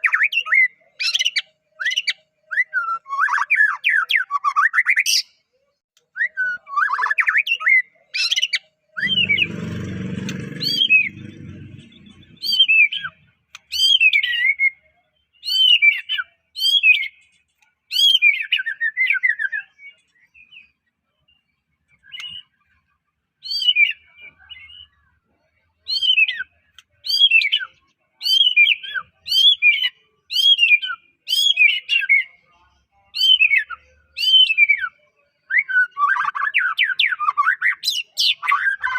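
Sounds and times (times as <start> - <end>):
bird singing whistled phrases: 0.0 - 5.0, 15.4 - 17.2, 33.2 - 38.9
brief low noise: 9.0 - 12.6.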